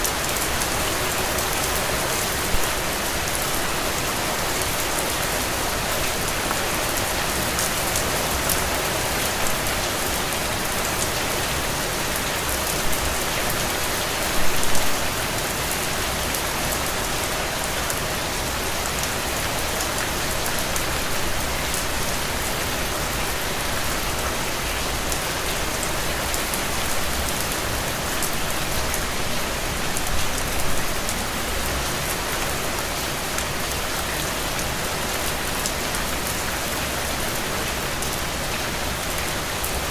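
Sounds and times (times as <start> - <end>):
heavy rain on puddles: 0.0 - 39.9.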